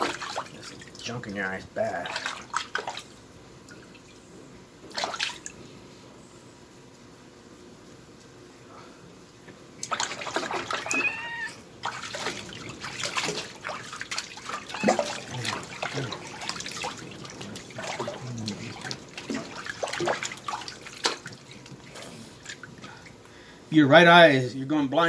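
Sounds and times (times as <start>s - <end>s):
water splashing and trickling: 0.0s - 4.2s, 4.8s - 5.6s, 9.8s - 23.2s
kitten meowing: 10.8s - 11.6s, 14.7s - 15.4s.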